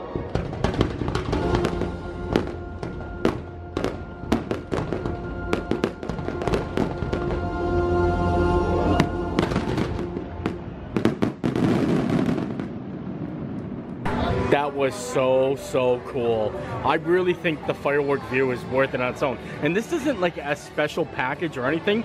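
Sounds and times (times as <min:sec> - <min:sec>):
fireworks bursting: 0:00.0 - 0:07.6, 0:08.9 - 0:15.2.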